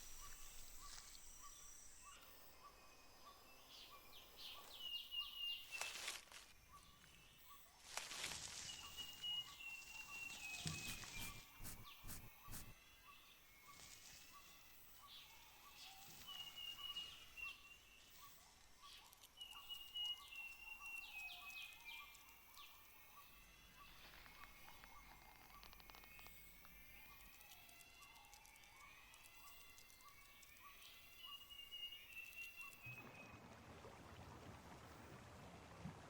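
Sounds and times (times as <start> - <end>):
rustling: 10.6 - 12.7.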